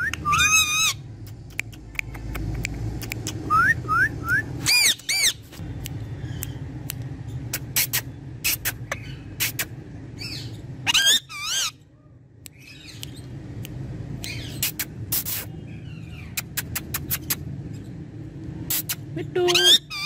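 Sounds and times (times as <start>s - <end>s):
parrot loud wavering calls: 0.0s - 1.1s, 4.6s - 5.4s, 10.2s - 11.8s, 19.5s - 20.0s.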